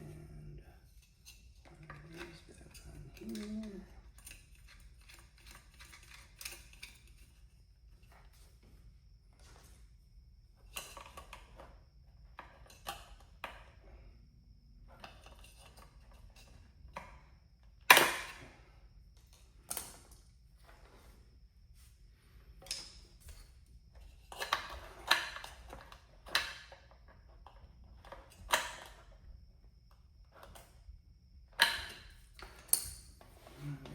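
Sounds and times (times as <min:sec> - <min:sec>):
tools clicking and knocking on workbench: 0:01.0 - 0:07.4, 0:24.0 - 0:29.2, 0:31.5 - 0:33.3.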